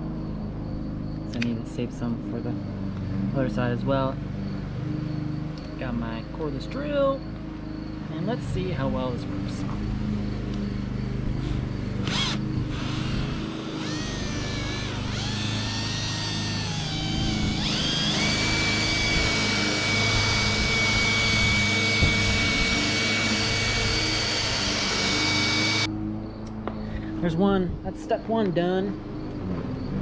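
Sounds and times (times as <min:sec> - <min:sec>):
low hum: 0:07.1 - 0:27.9
cordless drill motor whine: 0:10.5 - 0:25.9.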